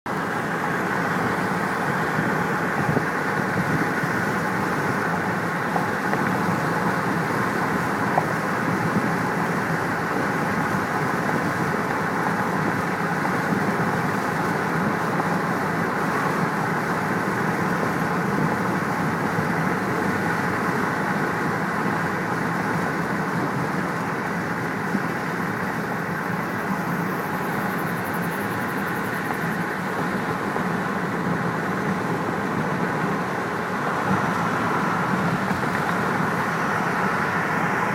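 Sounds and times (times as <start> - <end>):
road traffic noise: 0.0 - 37.9.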